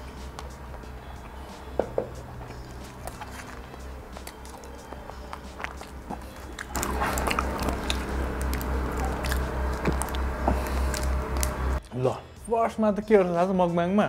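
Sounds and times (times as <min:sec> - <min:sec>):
background music with low beat: 0:00.0 - 0:14.0
chewing crispy fried chicken: 0:02.2 - 0:11.9.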